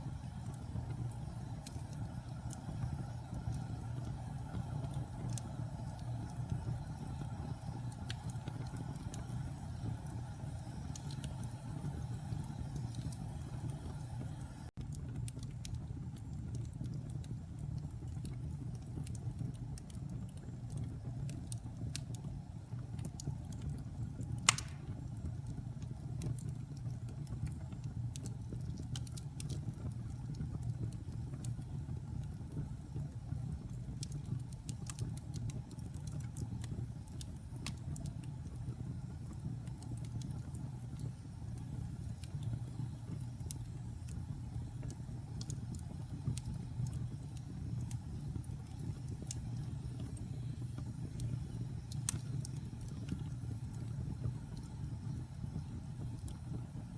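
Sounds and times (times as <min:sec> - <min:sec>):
fire crackling: 0:00.0 - 0:56.9
fire rumbling: 0:00.0 - 0:56.9
sharp wood pop: 0:24.5 - 0:24.9.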